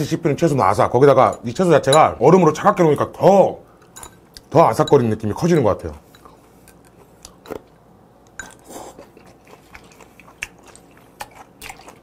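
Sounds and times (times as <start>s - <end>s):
chewing crunches and clicks: 6.2s - 12.0s.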